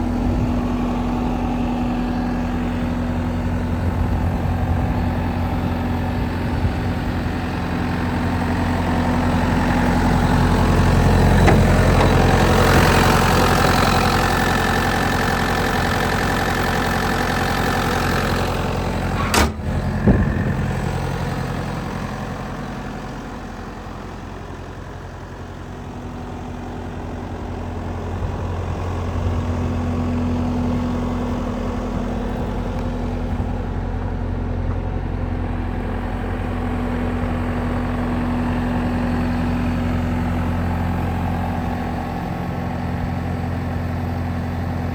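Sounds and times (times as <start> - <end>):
diesel loader engine running: 0.0 - 44.9.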